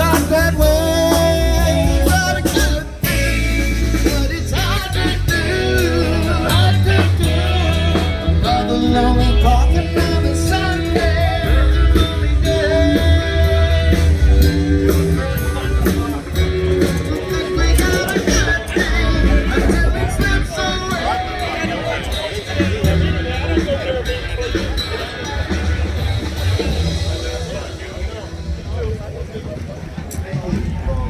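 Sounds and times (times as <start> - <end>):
person singing: 0.0 - 23.0
electric guitar: 0.0 - 31.0
steady bass: 0.0 - 31.0.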